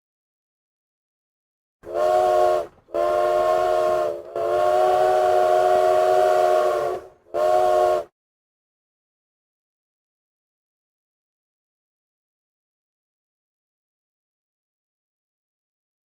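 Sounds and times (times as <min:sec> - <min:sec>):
steam train chime whistle: 0:01.8 - 0:08.1.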